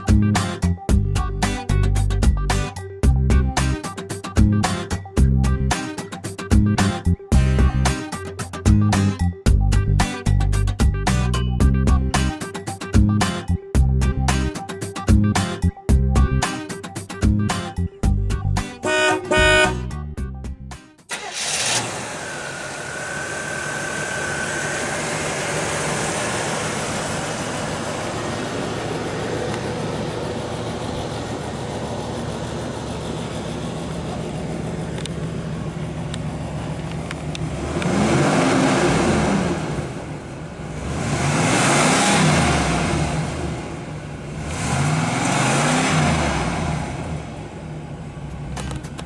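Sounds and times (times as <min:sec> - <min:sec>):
car engine starting and idling: 0:17.2 - 0:20.4, 0:21.0 - 0:49.0
engine revving: 0:18.8 - 0:20.0, 0:21.1 - 0:49.0.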